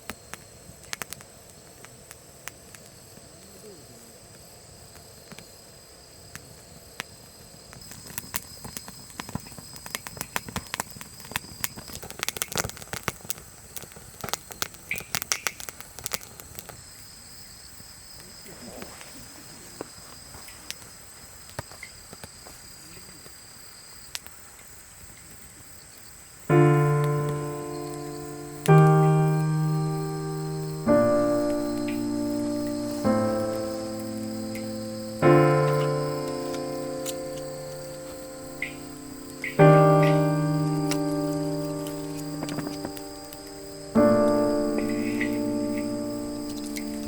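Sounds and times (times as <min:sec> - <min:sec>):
insect chirring: 0:26.5 - 0:47.0
piano chord: 0:26.5 - 0:47.0
sparks crackling: 0:26.5 - 0:47.0.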